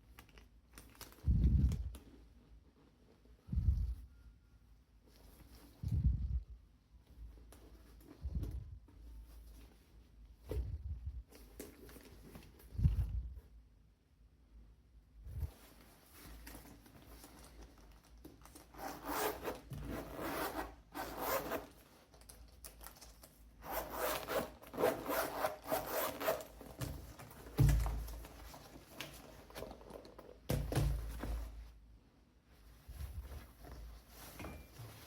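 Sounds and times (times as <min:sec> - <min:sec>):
rubbing on leather bag: 0:23.6 - 0:26.8.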